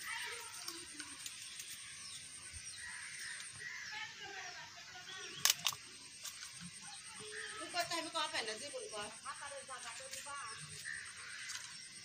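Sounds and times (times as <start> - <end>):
faint bird chirps: 0.0 - 12.0
sharp clicks: 5.3 - 6.5.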